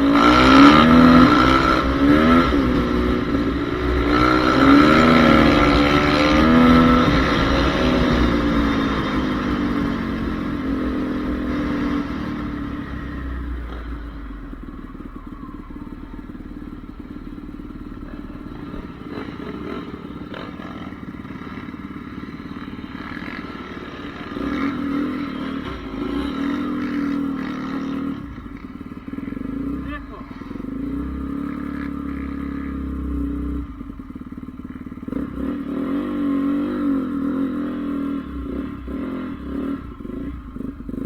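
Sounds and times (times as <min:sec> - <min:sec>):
motorbike engine: 0:00.0 - 0:41.0.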